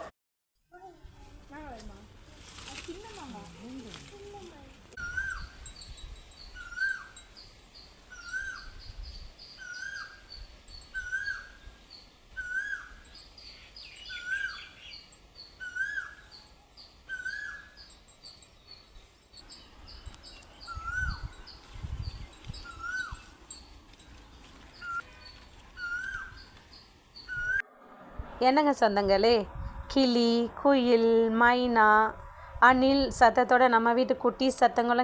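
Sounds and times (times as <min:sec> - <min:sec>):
high bird chirps: 0:05.0 - 0:23.7, 0:24.7 - 0:27.6
low rumble: 0:27.4 - 0:33.2.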